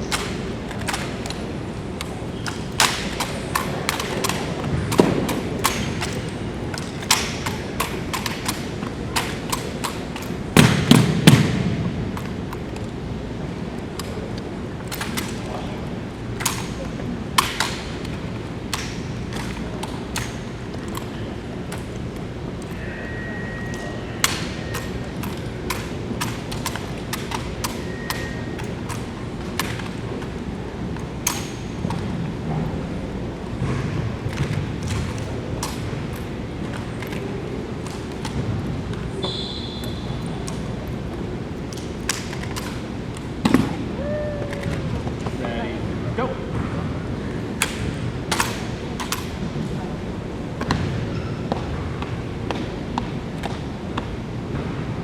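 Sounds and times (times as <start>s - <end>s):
rifles slapped and caught: 0.0s - 13.0s, 14.0s - 15.7s, 16.4s - 22.7s, 24.2s - 32.2s, 33.6s - 40.7s, 41.7s - 45.4s, 47.6s - 49.5s
background noise: 0.0s - 55.0s
low background hum: 0.0s - 55.0s
brief high tone: 22.8s - 24.2s.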